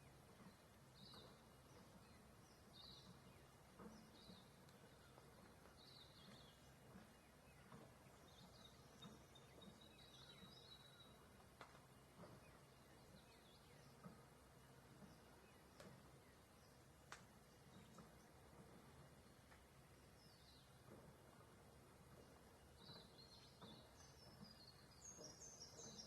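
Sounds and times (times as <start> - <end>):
birds chirping: 0.0 - 26.0
outdoor background noise: 0.0 - 26.0
faint clicks: 3.8 - 9.8, 10.4 - 16.4, 17.0 - 19.8.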